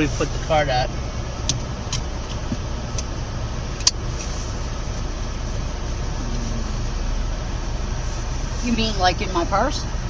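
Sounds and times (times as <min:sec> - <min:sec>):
low rumble inside car: 0:00.0 - 0:10.0
sharp click: 0:03.8 - 0:04.0.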